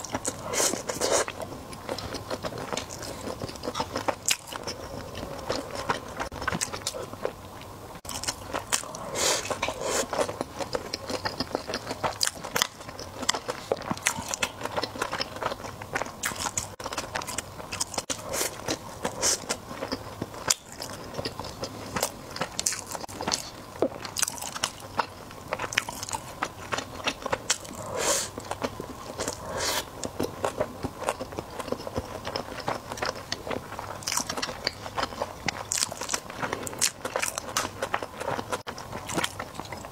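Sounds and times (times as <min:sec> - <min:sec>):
chewing with mouth smacks: 0:00.0 - 0:39.9.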